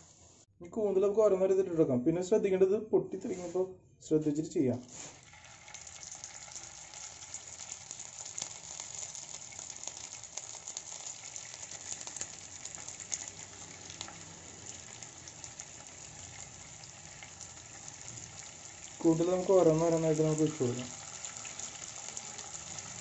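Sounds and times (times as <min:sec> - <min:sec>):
squid sizzling in hot oil: 0:04.9 - 0:23.0.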